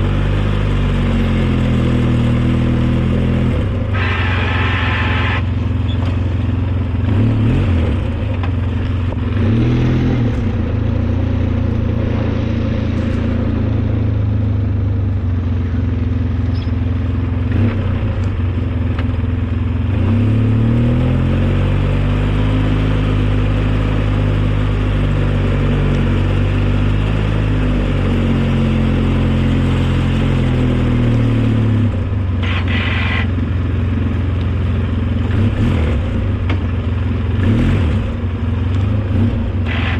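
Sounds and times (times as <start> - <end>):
snowplow engine running: 0.0 - 39.9
harsh high-pitched rasp: 4.0 - 5.5, 32.4 - 33.4, 39.7 - 39.9.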